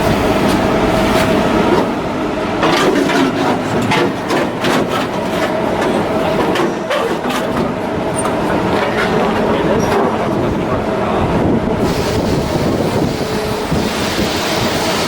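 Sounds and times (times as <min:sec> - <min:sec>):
machinery hum: 0:00.0 - 0:15.0
machinery knocks and clanks: 0:00.4 - 0:10.9.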